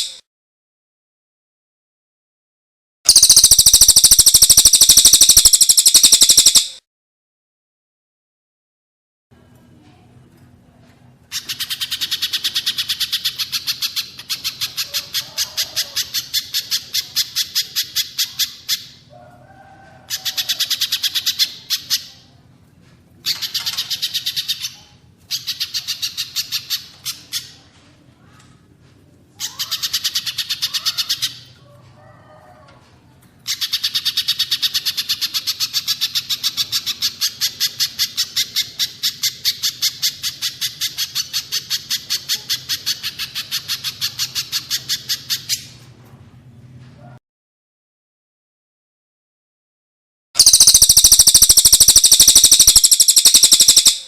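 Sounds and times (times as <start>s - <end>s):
fainter lower bird calls: 0.0s - 0.2s, 3.1s - 6.8s, 50.4s - 54.0s
sharp high bird calls: 0.0s - 0.2s, 3.1s - 6.8s, 29.4s - 31.6s, 50.4s - 54.0s.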